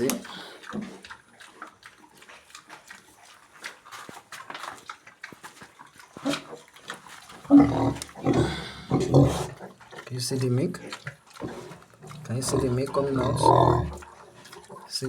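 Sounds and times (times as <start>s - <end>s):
sow grunting: 7.5s - 9.6s, 12.1s - 14.0s.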